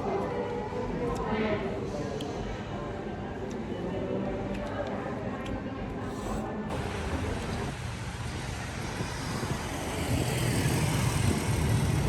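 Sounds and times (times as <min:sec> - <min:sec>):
passing vehicles: 0:06.7 - 0:12.0.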